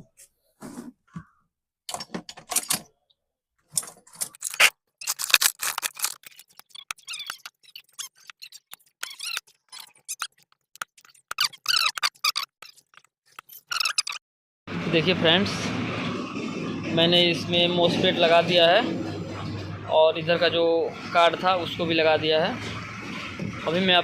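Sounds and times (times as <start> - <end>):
metal tools scraping circuit board: 3.8 - 14.2
squeaks: 4.3 - 14.2.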